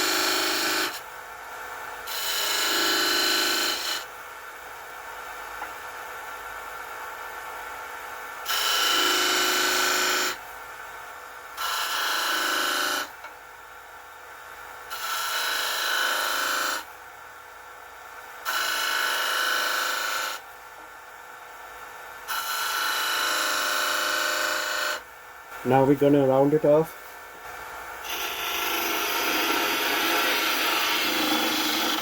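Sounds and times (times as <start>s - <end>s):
wood lathe running: 2.1s - 4.0s, 28.0s - 32.0s
turning tool scraping wood: 28.0s - 32.0s.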